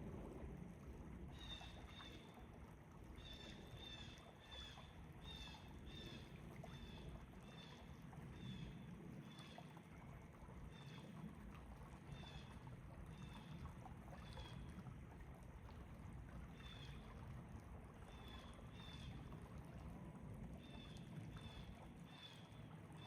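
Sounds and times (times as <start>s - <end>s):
faint low rumble: 0.0s - 3.8s, 4.9s - 23.0s.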